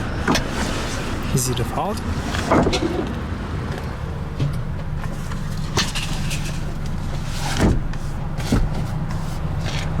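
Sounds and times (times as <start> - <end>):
car seat clicks and knocks: 7.5 - 9.0.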